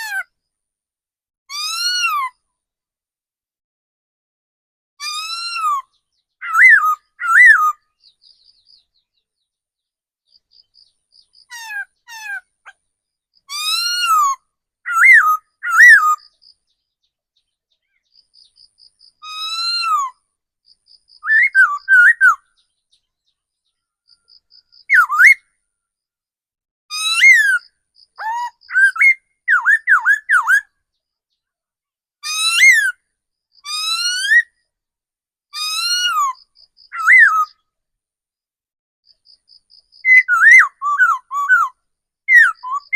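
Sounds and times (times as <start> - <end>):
laughingthrush whistling song: 5.0 - 7.8, 21.2 - 22.5, 24.8 - 25.4, 26.9 - 30.7, 35.6 - 37.6, 40.0 - 42.9.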